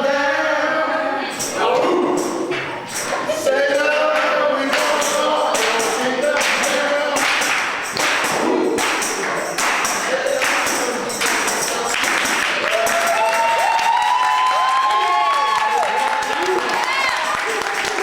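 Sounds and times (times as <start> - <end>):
gospel singing: 0.0 - 18.0
percussive beat: 1.4 - 14.2.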